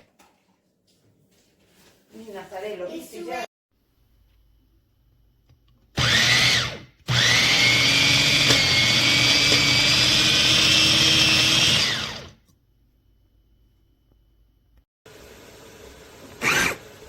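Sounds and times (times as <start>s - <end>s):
electric food chopper motor whining: 6.0s - 12.4s, 15.1s - 17.0s.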